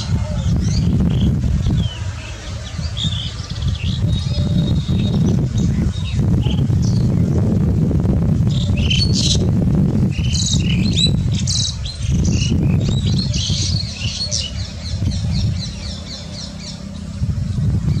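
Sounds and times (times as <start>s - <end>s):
small birds chirping: 0.0s - 7.5s, 8.5s - 9.5s, 10.1s - 18.0s
low rumble: 0.0s - 18.0s.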